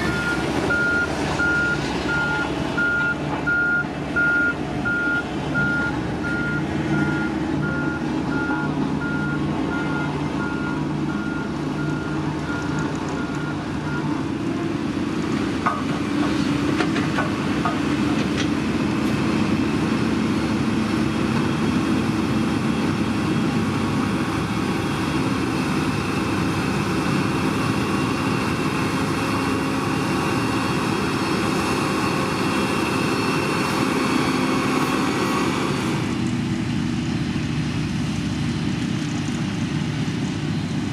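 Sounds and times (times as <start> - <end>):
reversing alarm beeps: 0.0 - 14.1
diesel engine running: 0.0 - 40.9.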